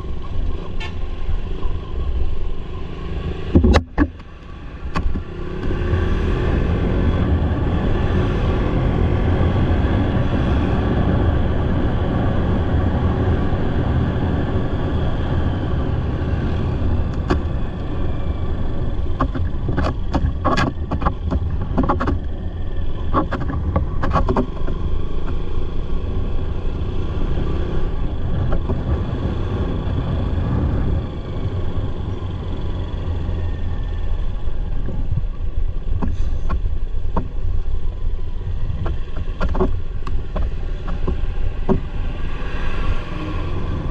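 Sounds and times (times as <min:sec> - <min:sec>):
motorcycle engine and road rumble: 0:00.0 - 0:43.9
sharp clicks and knocks: 0:03.5 - 0:05.8, 0:17.1 - 0:17.9, 0:19.0 - 0:25.5, 0:28.3 - 0:29.0, 0:34.8 - 0:37.7, 0:38.7 - 0:42.0.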